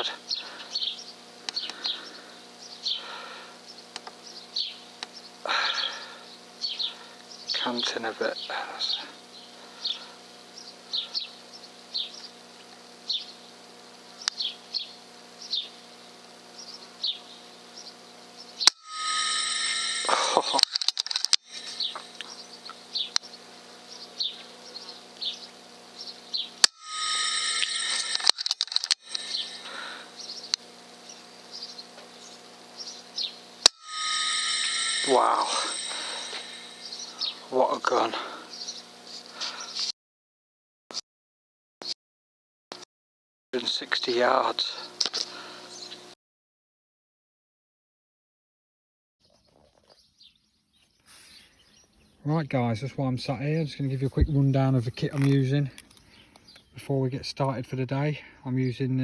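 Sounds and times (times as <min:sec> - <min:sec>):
faint hum: 0:00.0 - 0:39.9
small birds chirping: 0:00.2 - 0:18.7, 0:21.6 - 0:26.6, 0:29.3 - 0:33.4, 0:38.5 - 0:39.9, 0:45.6 - 0:46.1, 0:49.2 - 0:52.3, 0:53.6 - 0:57.0
sharp clicks: 0:20.5 - 0:22.3, 0:26.6 - 0:29.5.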